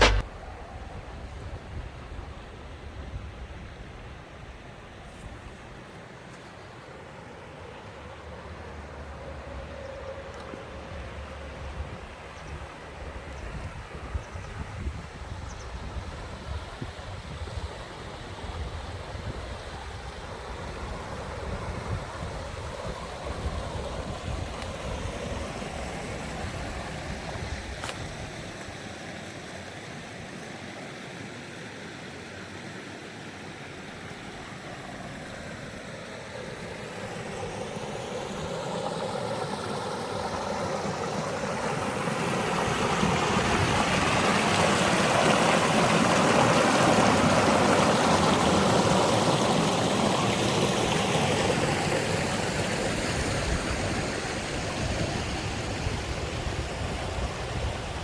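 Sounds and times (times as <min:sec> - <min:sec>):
stream rushing: 0:00.0 - 0:00.5, 0:16.9 - 0:58.0.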